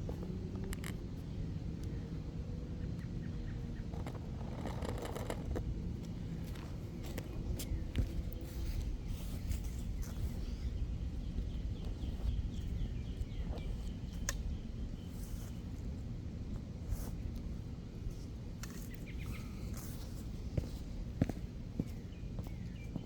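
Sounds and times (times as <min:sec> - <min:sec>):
low wind rumble: 0:00.0 - 0:23.0
clicks and rustles: 0:03.9 - 0:06.8
bird chirping: 0:18.8 - 0:20.1.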